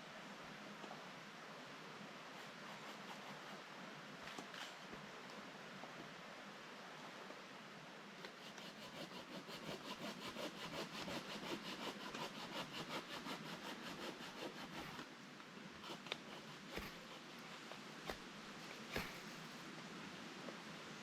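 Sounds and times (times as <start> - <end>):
hand saw cutting wood: 2.4 - 3.6, 8.3 - 15.1, 15.8 - 19.6
sharp knocks of wood: 18.9 - 19.3.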